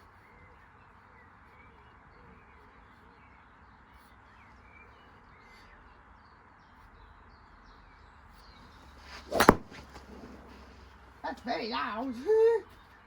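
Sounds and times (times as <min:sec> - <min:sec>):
distant birds chirping: 0:08.4 - 0:12.2.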